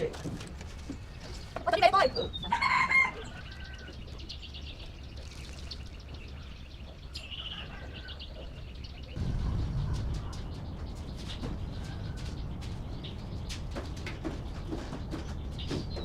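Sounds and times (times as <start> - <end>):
small birds chirping: 0.0 - 16.0
low rumble: 9.1 - 14.6
steady low hum: 9.1 - 15.5.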